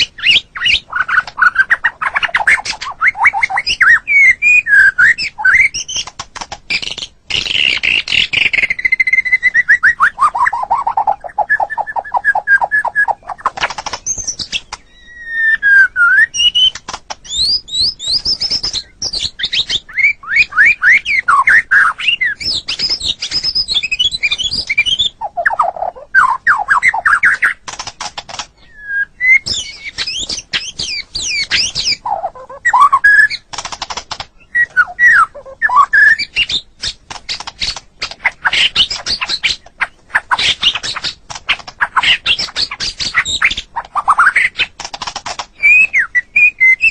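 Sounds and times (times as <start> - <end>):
bird singing whistled phrases: 0.0 - 6.0, 6.7 - 27.6, 28.6 - 33.4, 34.4 - 36.7, 45.6 - 46.9
dry clicking bird notes: 0.0 - 46.9.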